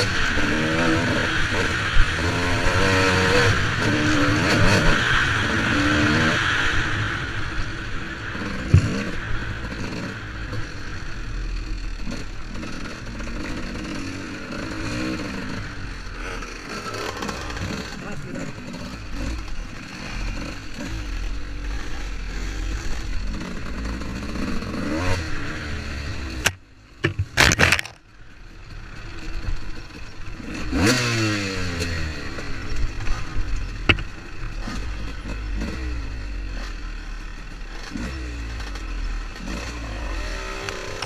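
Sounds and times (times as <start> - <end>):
dirt bike engine revving: 0.0 - 28.0, 28.8 - 41.0
clatter and scraping: 8.4 - 10.7, 12.0 - 24.8, 26.3 - 28.1.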